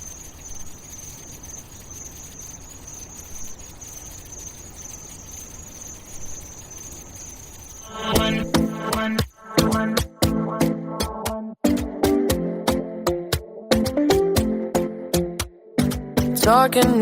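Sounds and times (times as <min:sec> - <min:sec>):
high-pitched insect-like trill: 0:00.0 - 0:10.4, 0:15.8 - 0:17.0
music with a beat: 0:07.9 - 0:17.0.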